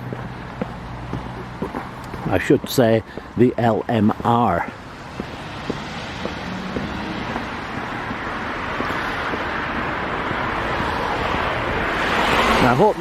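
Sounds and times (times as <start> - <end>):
car approaching: 0.0 - 13.0
road traffic noise: 0.0 - 13.0.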